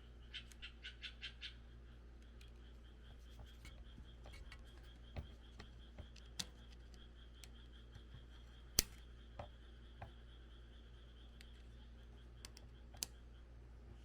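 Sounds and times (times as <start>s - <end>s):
clicks and knocks of tools: 3.2s - 10.1s.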